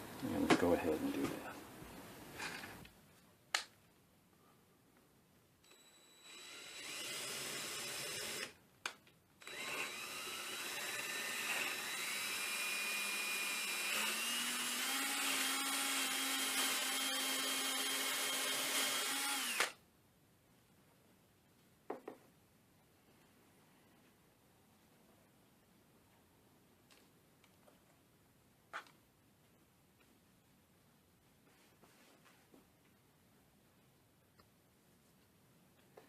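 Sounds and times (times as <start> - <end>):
electric drill boring into wood: 5.6 - 8.6, 9.4 - 19.8.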